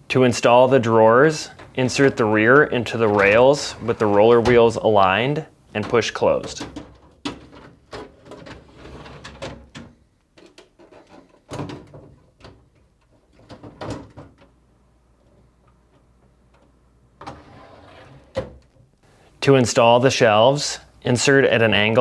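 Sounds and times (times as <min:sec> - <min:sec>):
drawer rolling and scraping: 0:01.3 - 0:05.2, 0:05.8 - 0:09.8, 0:17.2 - 0:18.6
drawer knocks and clicks: 0:01.6 - 0:04.8.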